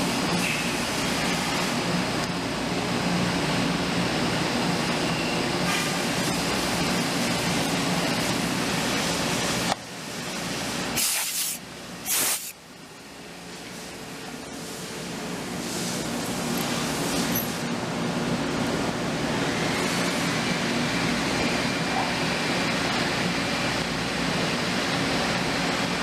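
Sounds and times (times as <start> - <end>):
short loud hisses: 11.0 - 12.6.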